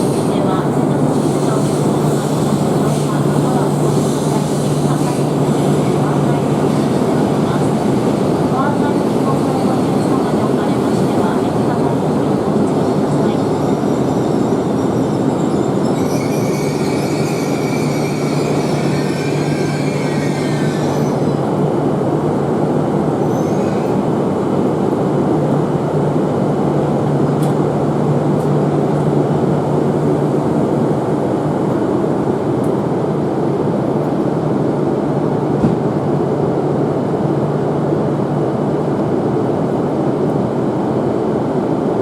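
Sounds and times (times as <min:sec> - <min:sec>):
train wheel and brake squeal: 0:00.0 - 0:07.3, 0:12.3 - 0:21.6, 0:23.2 - 0:24.2
train rumble and low hum: 0:00.0 - 0:42.0.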